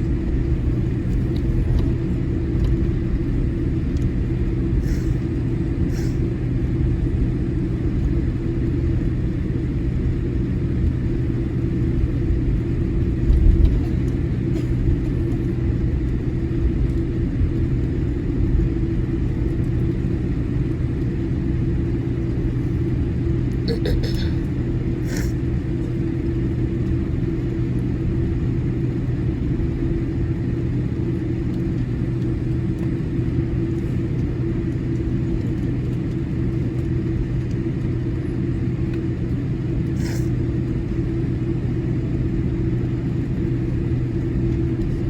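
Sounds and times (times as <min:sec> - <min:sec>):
aircraft cabin rumble and hum: 0:00.0 - 0:45.0.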